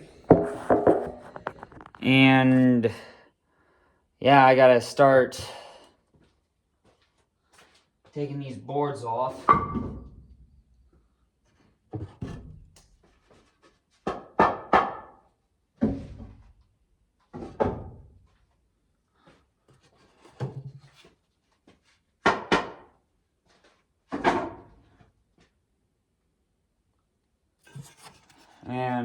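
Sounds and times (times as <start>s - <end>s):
wooden boards knocking: 0.2s - 1.9s, 22.3s - 22.8s.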